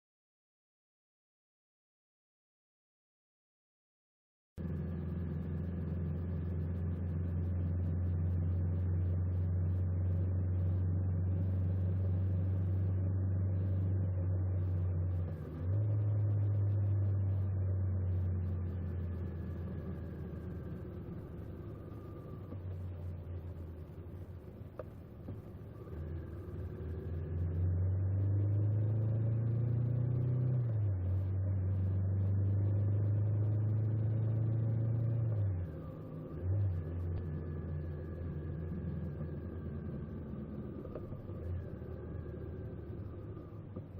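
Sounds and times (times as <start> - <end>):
motorcycle engine accelerating: 4.6 - 43.9.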